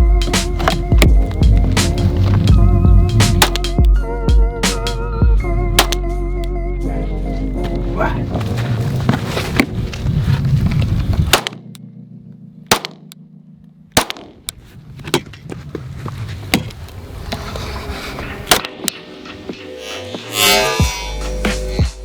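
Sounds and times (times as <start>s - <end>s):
background music: 0.0s - 8.4s, 18.4s - 22.0s
pistol shots: 12.7s - 13.1s, 14.0s - 14.4s.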